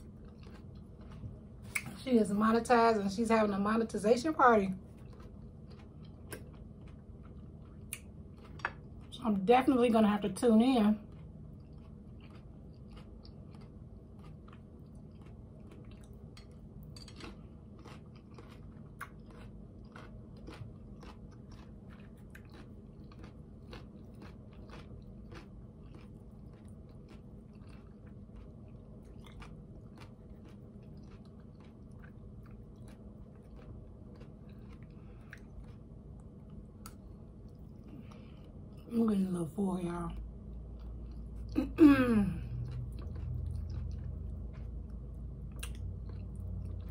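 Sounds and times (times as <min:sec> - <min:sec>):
quiet chewing: 0:00.0 - 0:02.0, 0:04.7 - 0:09.2, 0:11.0 - 0:38.9, 0:40.1 - 0:41.7, 0:42.3 - 0:46.9
low hum: 0:00.0 - 0:46.9.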